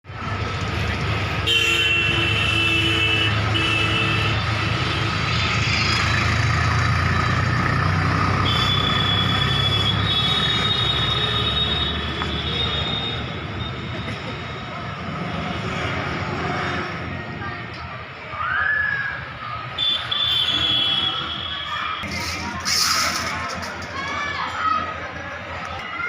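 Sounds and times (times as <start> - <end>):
heavy vehicle engine rumbling: 0.0 - 18.4, 19.2 - 25.8
vehicle horn tones: 8.4 - 13.2.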